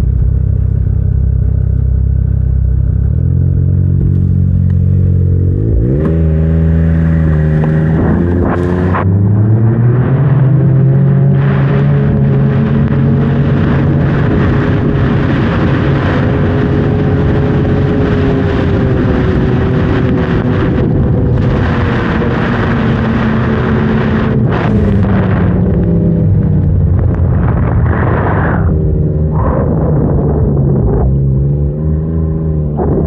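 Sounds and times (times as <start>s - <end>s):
wind buffeting microphone: 5.5s - 31.5s
snowmobile engine running hard: 10.1s - 31.3s.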